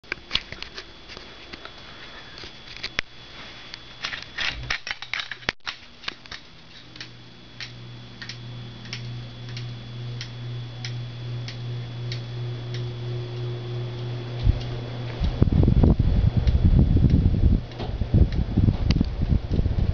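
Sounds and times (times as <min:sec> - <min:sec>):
ceiling fan motor hum: 0:00.0 - 0:19.9
fan ticking: 0:05.6 - 0:19.9.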